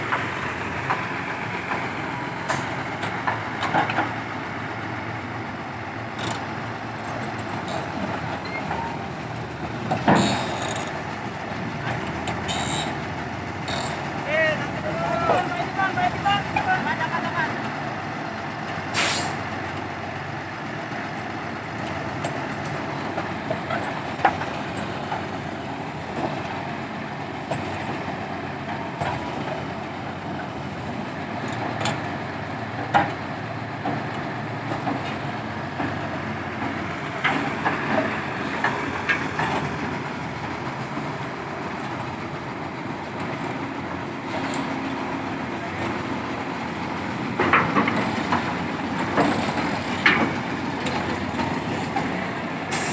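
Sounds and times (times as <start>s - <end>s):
diesel machinery running: 0.0s - 52.9s
metallic clanks and knocks: 36.6s - 39.8s, 47.4s - 52.1s.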